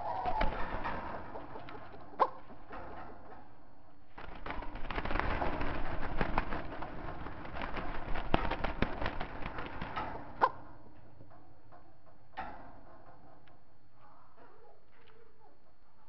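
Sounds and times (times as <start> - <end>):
birds fluttering wingbeats: 0.0 - 3.4, 4.1 - 11.2.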